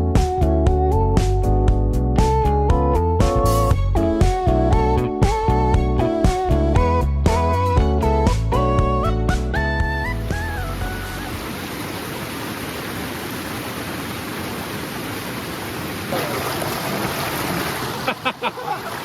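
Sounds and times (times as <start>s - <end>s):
guitar music: 0.0s - 11.2s
stream flowing: 10.2s - 19.0s.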